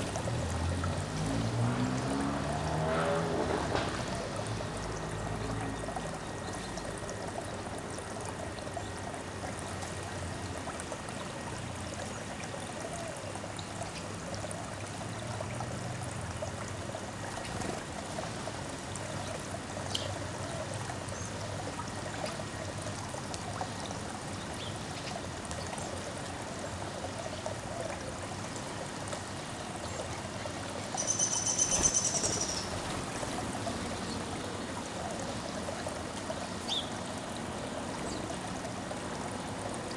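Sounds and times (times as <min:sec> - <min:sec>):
water trickling: 0:00.0 - 0:39.9
high-pitched bird call: 0:31.0 - 0:32.6.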